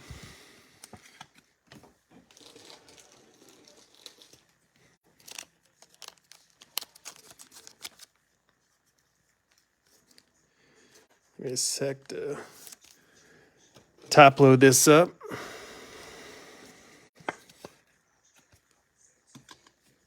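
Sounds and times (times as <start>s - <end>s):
card sleeves rustling: 2.3s - 10.4s.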